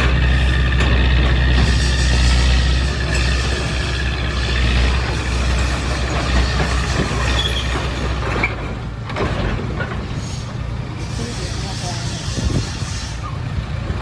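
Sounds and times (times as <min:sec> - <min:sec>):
diesel engine rumble: 0:00.0 - 0:14.0
short high squeaks: 0:05.8 - 0:08.6.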